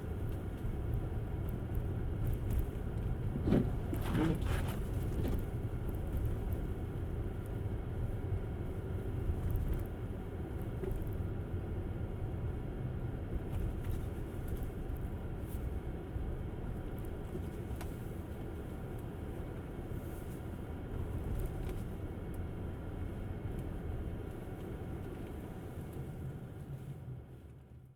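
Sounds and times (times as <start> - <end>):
tyre and road noise: 0.2 - 6.6.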